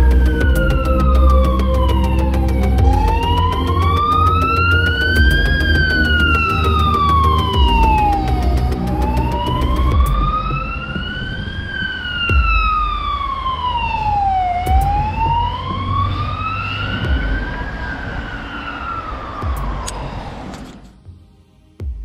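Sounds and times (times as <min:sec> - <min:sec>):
low rumble: 0:00.0 - 0:16.0, 0:16.9 - 0:18.4
wailing siren: 0:00.0 - 0:20.8.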